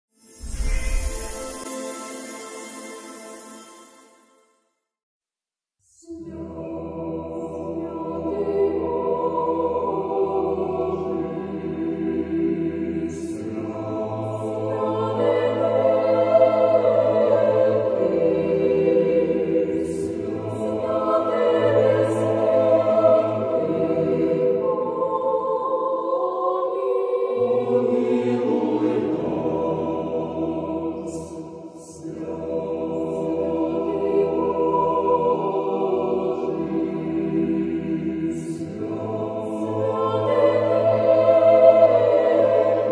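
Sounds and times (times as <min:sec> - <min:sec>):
low drone: 0:00.4 - 0:03.4
choir chanting in chords: 0:00.4 - 0:04.2, 0:05.9 - 0:42.9.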